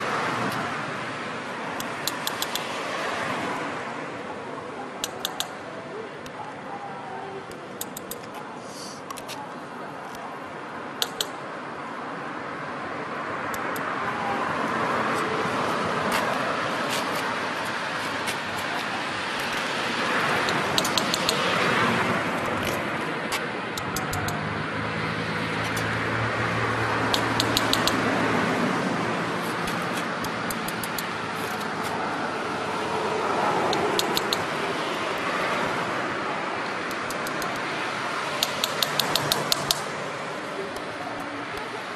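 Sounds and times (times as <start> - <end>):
vehicles passing by: 0.0 - 41.9
sharp metallic clicks: 1.8 - 2.8, 5.0 - 5.6, 7.5 - 8.4, 11.0 - 11.4, 13.5 - 14.0, 18.2 - 21.6, 22.6 - 24.4, 25.5 - 26.0, 27.0 - 28.1, 29.4 - 32.0, 33.6 - 34.6, 36.8 - 37.7, 38.3 - 40.0.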